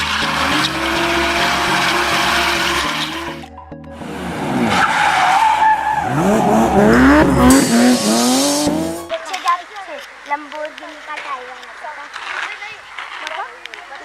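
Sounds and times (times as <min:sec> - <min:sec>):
electric motor whining: 0:00.0 - 0:03.5
tyre and ground noise: 0:00.0 - 0:14.0
electronic dance music: 0:06.1 - 0:09.2.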